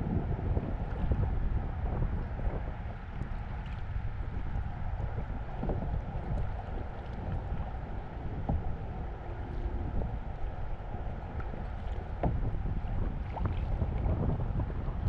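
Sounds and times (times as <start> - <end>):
wind rumble on microphone: 0.0 - 15.0
paddles dipping into water: 5.2 - 14.2
water splashes and drips: 5.5 - 10.4.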